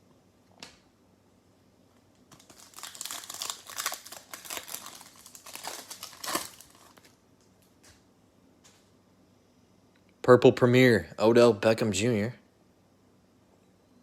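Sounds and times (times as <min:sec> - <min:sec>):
plastic wrapper crinkling: 0:02.2 - 0:07.7.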